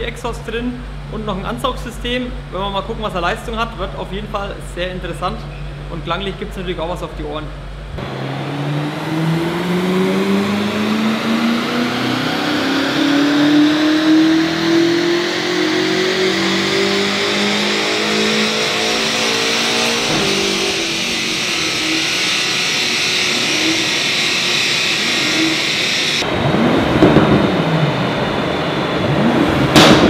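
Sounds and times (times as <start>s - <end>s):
car engine revving at full throttle: 7.8s - 30.0s.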